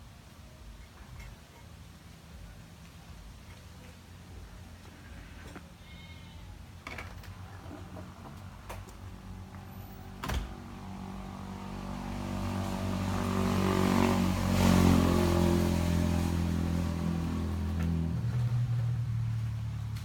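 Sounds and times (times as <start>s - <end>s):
vehicle engine running: 7.5s - 20.0s.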